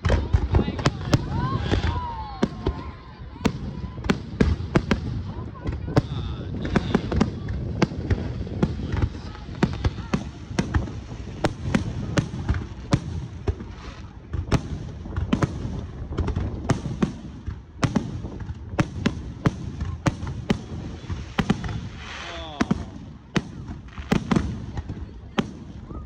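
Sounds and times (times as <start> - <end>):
fireworks bursting with sharp bangs: 0.0 - 26.0.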